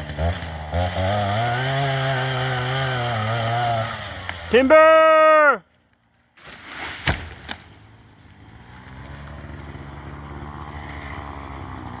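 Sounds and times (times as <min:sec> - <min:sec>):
chainsaw engine running: 0:00.0 - 0:04.8, 0:08.4 - 0:12.0.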